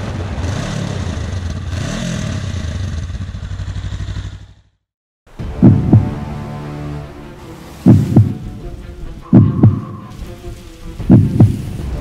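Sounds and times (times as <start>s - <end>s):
motorcycle engine revving: 0.1s - 4.9s.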